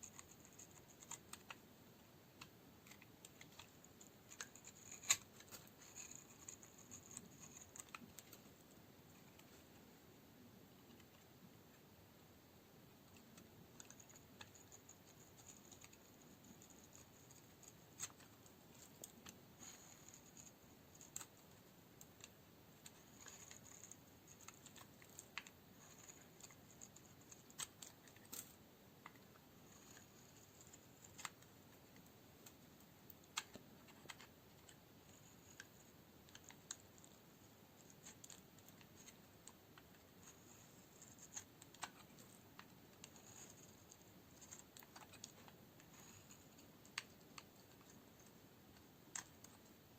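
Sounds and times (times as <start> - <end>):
soap clicking and crackling: 0.0 - 8.4, 13.0 - 49.8.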